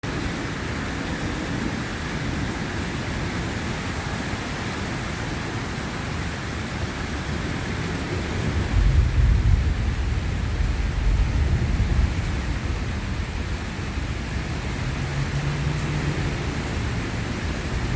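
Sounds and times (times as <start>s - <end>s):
steady rain falling: 0.0s - 17.9s
thunder rumbling: 8.4s - 17.9s.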